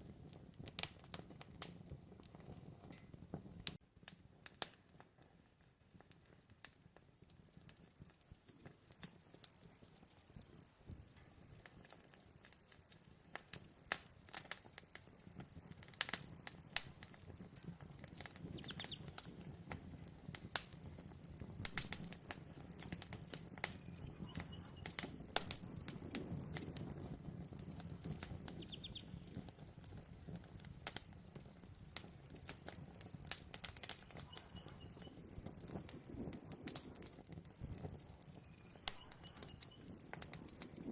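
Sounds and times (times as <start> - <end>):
wood fire popping and crackling: 0.0 - 40.9
crickets chirping: 7.2 - 14.2, 14.8 - 40.9.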